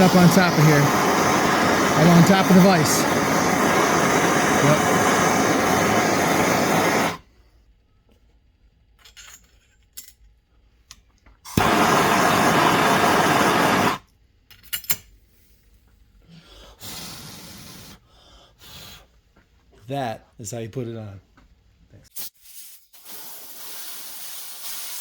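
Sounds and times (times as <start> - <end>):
heating tool blowing: 0.0 - 7.3, 11.5 - 14.0, 16.7 - 18.0.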